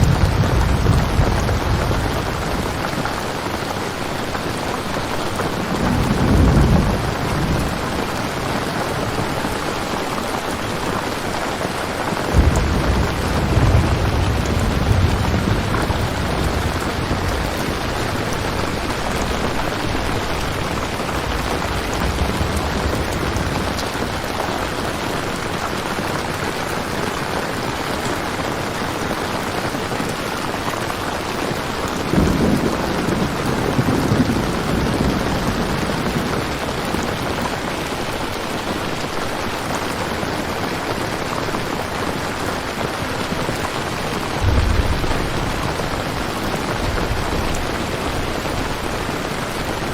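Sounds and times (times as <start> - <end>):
thunder rumbling: 0.0 - 26.1, 31.7 - 38.3, 43.2 - 49.9
heavy rain hissing: 0.0 - 49.9.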